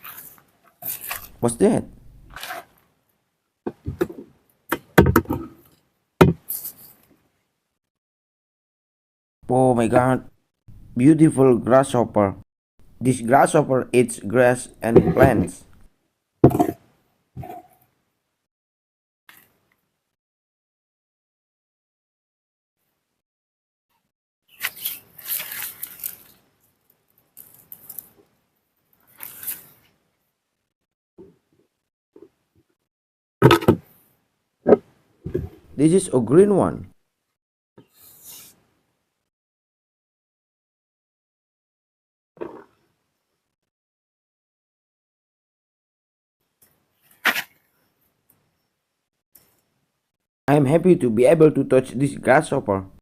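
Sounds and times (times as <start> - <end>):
sharp knocks and taps: 6.2 - 6.4
brief rustle: 24.5 - 26.4, 29.0 - 29.9, 47.0 - 47.7.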